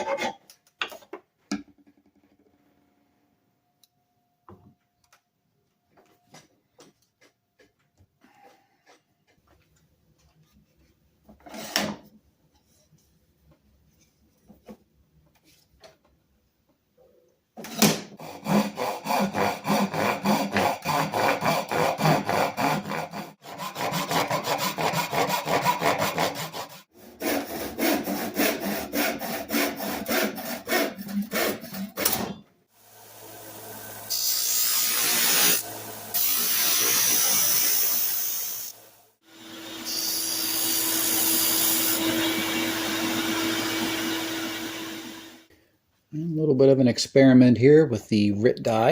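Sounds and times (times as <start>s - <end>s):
small power tool running: 32.8s - 45.5s.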